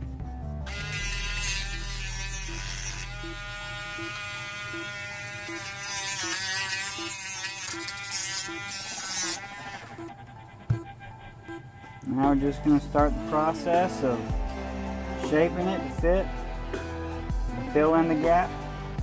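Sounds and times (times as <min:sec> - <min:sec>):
rotary tool grinding plastic: 0:00.7 - 0:10.9.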